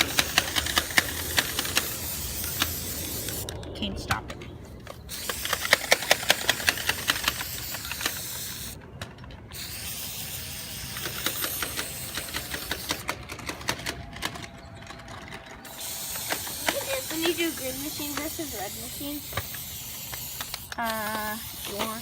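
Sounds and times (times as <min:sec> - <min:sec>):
spray can rattling click: 0:00.0 - 0:03.4, 0:05.1 - 0:14.4, 0:15.7 - 0:22.0
spray paint can hissing: 0:00.0 - 0:03.5, 0:04.9 - 0:08.8, 0:09.5 - 0:13.9, 0:15.6 - 0:22.0.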